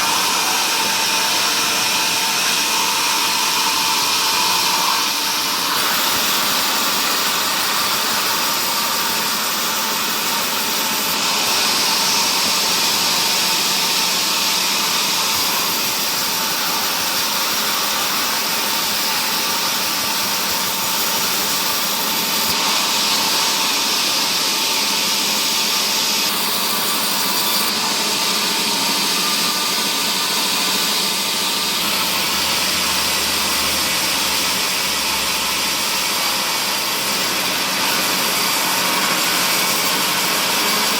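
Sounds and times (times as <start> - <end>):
woodworking machinery whirring: 0.0 - 40.9.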